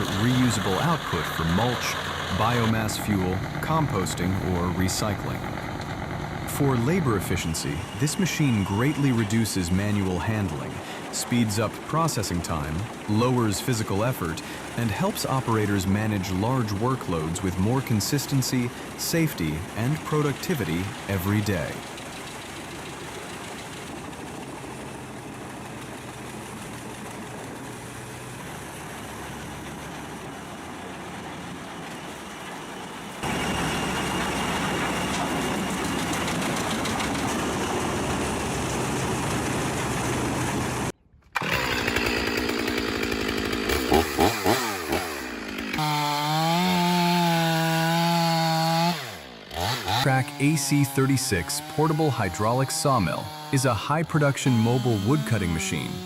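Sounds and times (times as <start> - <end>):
engine with wavering pitch: 0.0 - 10.7
wood-cutting machinery running: 0.0 - 56.0.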